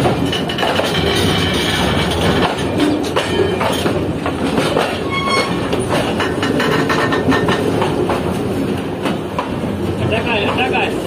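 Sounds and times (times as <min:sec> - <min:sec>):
wheels clicking over track: 0:00.0 - 0:10.7
freight train rumbling: 0:00.0 - 0:11.0
train wheel squeal: 0:00.5 - 0:04.0, 0:04.8 - 0:07.7.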